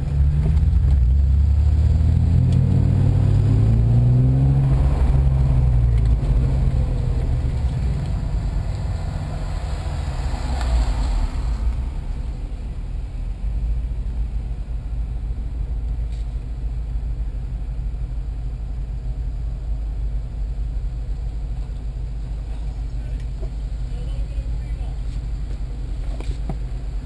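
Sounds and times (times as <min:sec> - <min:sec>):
rush of noise: 0:00.0 - 0:13.9
car engine rumble inside car: 0:00.0 - 0:27.0.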